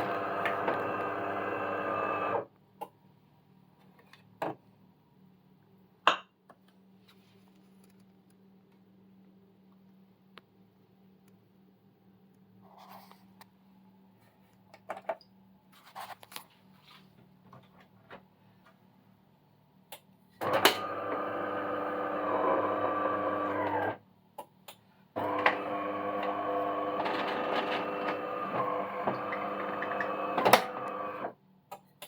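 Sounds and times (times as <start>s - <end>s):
coffee machine mechanical buzz: 0.0s - 2.4s, 20.4s - 24.0s, 25.2s - 31.3s.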